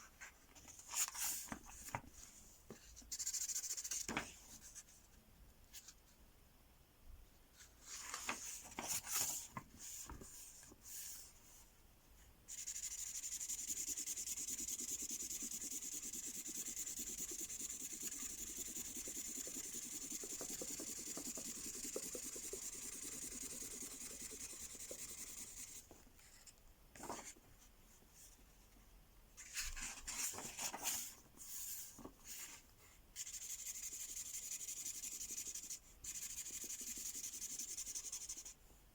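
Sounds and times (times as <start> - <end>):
marker pen scribbling on paper: 12.5 - 25.8, 33.2 - 38.5.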